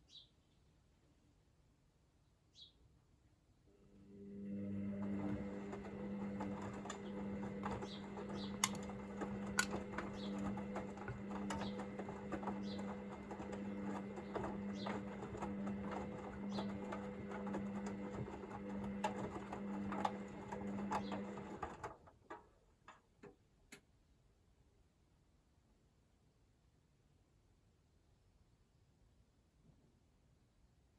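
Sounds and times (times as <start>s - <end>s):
washing machine motor hum: 3.7s - 22.2s.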